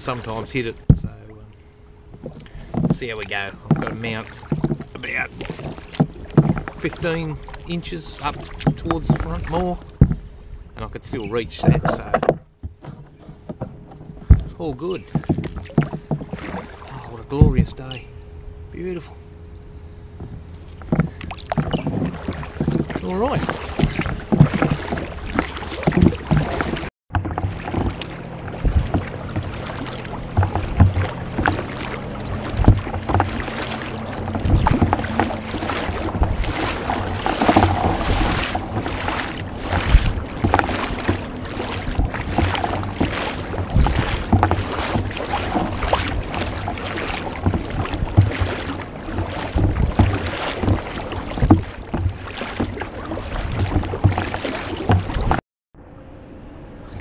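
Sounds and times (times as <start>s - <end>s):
paddle strokes splashing water: 0.0s - 18.2s, 18.8s - 55.4s.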